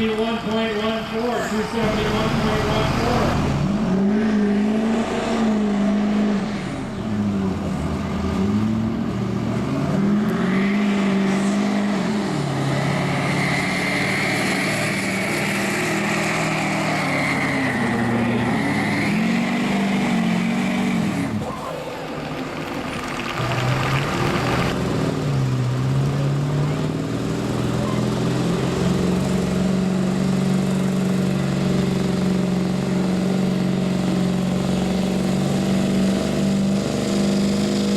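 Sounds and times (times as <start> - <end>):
diesel truck engine under load: 0.0 - 37.9.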